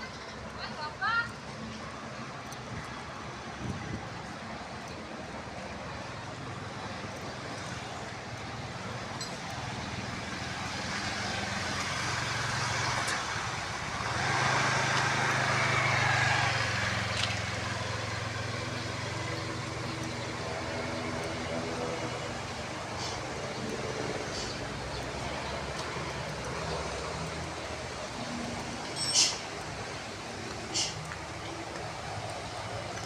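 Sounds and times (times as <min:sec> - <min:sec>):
vehicle engine passing: 0:09.7 - 0:33.0.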